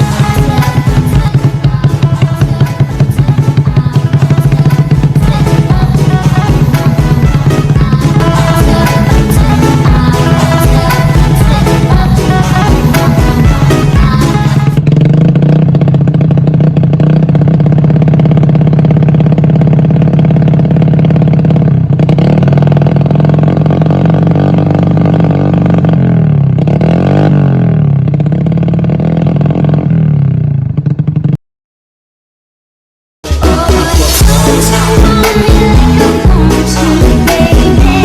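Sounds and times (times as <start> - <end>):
motorcycle engine idling and revving: 0.0 - 31.4, 33.2 - 38.0.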